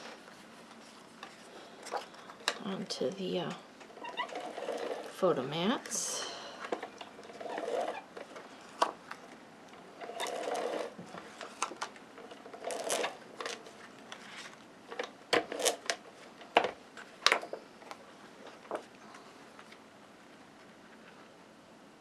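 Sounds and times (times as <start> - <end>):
paper rustling and sliding: 0.0 - 2.4, 12.6 - 14.7.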